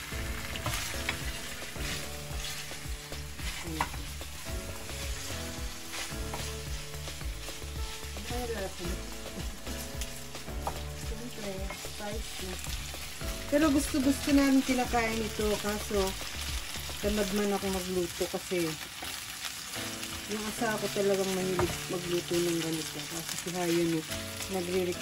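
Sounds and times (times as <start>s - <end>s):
chicken feet sizzling in wok: 0.0s - 25.0s
wooden spatula scraping pan: 0.6s - 8.4s.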